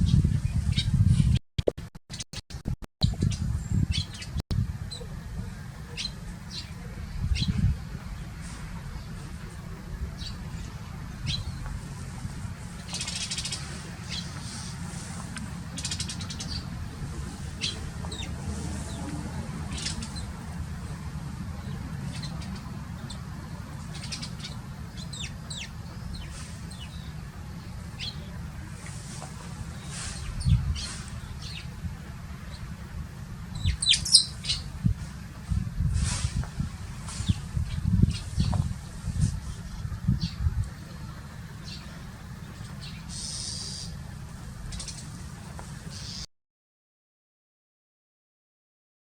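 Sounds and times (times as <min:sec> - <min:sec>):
sparrows chirping: 0:00.0 - 0:01.0, 0:03.0 - 0:35.5, 0:36.2 - 0:46.3.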